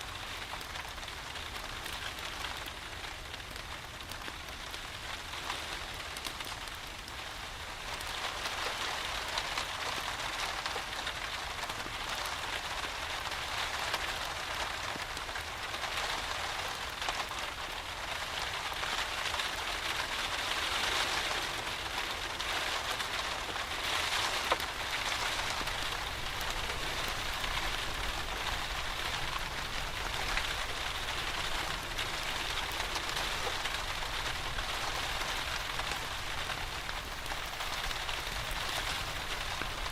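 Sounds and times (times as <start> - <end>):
steady rain hiss: 0.0 - 39.9
raindrop clicks: 23.4 - 39.9.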